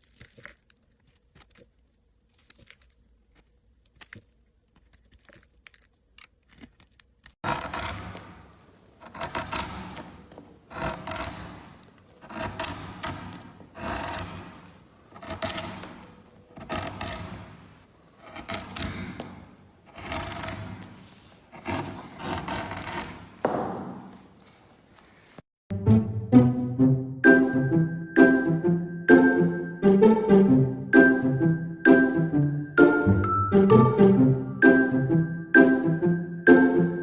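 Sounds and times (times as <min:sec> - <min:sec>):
scraping strokes: 0:07.6 - 0:25.4.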